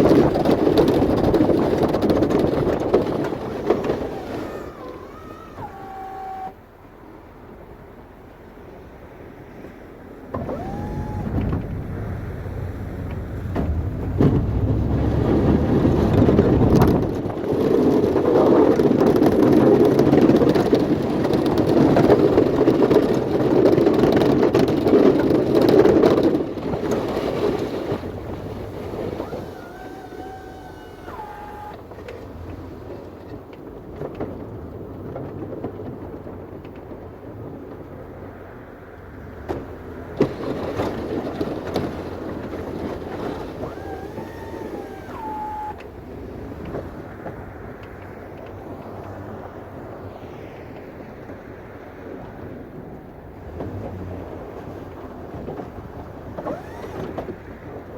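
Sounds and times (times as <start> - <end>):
snow-removal machine engine: 0.0 - 57.9
rising whine: 10.3 - 17.2.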